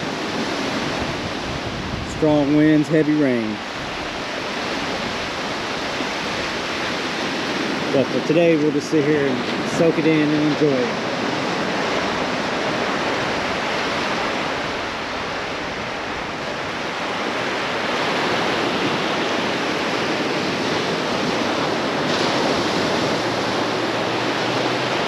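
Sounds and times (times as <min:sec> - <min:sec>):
ocean waves breaking: 0:00.0 - 0:25.0.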